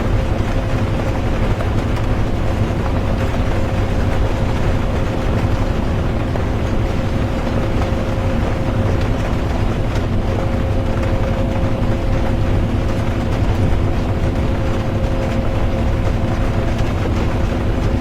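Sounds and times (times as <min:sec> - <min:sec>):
bus engine and road rumble: 0:00.0 - 0:18.0
constant hum: 0:00.0 - 0:18.0
rain on a bus: 0:00.0 - 0:18.0.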